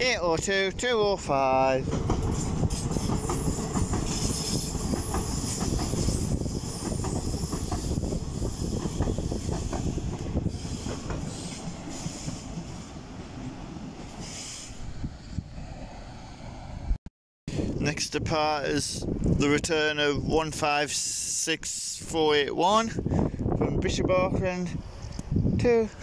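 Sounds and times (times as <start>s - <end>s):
train wheels clicking over rail joints: 1.8s - 12.9s.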